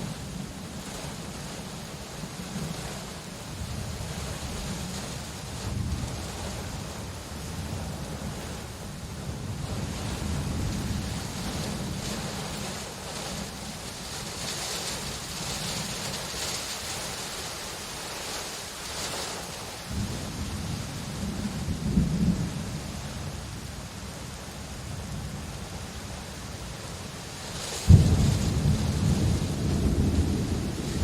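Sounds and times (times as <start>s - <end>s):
steady rain: 0.0s - 31.0s
rolling thunder: 19.9s - 23.4s, 27.8s - 31.0s.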